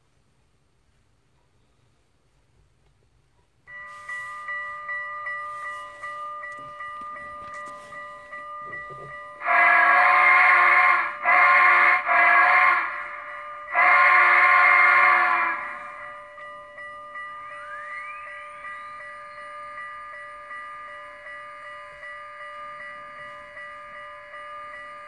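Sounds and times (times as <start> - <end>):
bell ringing: 3.7 - 12.1, 12.8 - 25.0
steam whistle blowing: 9.4 - 16.0.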